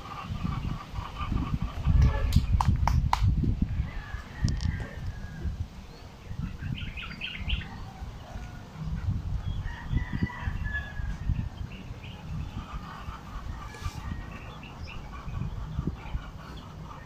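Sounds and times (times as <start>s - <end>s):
chickens clucking: 0.0s - 2.8s, 6.4s - 17.0s
continuous low rumble: 0.0s - 17.0s.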